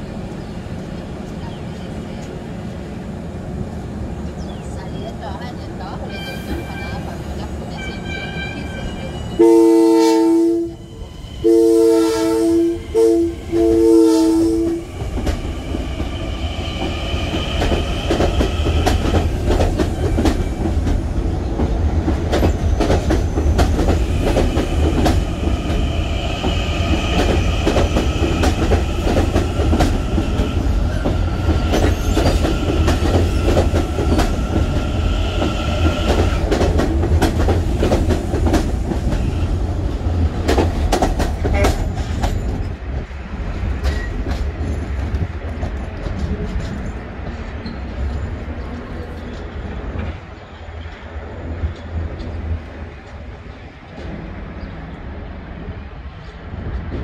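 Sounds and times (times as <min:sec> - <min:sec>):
electric train rumbling and whining: 0:00.0 - 0:57.0
two-tone train horn: 0:07.8 - 0:14.9.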